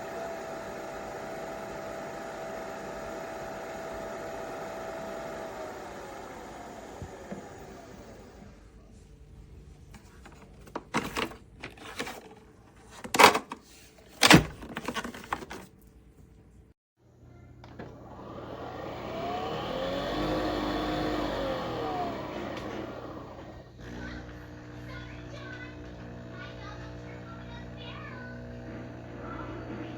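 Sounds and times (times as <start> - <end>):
coffee machine motor whine: 0.0 - 8.9, 17.5 - 29.9.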